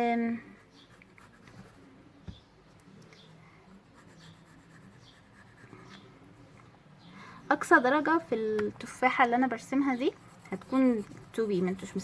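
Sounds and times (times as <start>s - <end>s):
pencil scratching on paper: 0.4s - 2.0s, 3.8s - 6.1s, 9.2s - 12.0s.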